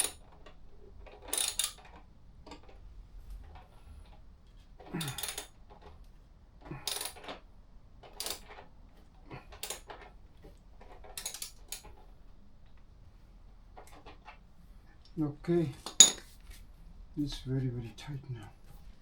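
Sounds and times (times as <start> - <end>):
metal tools clinking and scraping: 4.8 - 5.6, 15.6 - 16.4.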